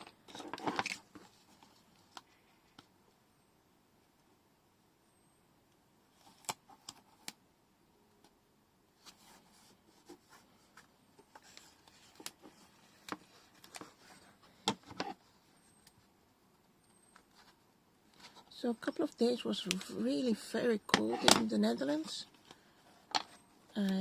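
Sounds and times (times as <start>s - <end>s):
soft paper rustling: 0.2s - 2.9s, 9.0s - 24.0s.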